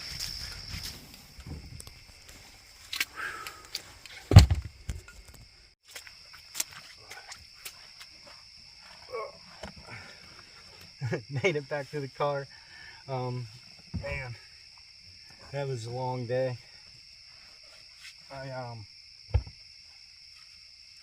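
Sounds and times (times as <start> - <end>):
insects trilling: 0.0 - 21.0
loud low thump: 19.3 - 19.6.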